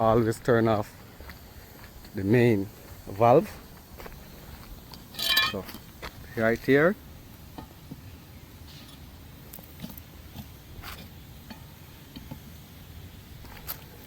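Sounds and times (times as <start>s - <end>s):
low steady hum: 0.0s - 14.0s
valve clicks and knocks: 11.5s - 12.5s.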